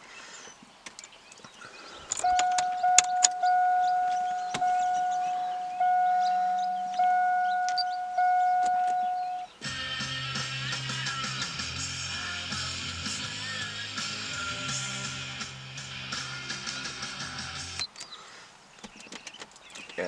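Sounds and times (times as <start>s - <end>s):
handling clicks: 2.1s - 3.4s
electronic chime tone: 2.2s - 9.5s.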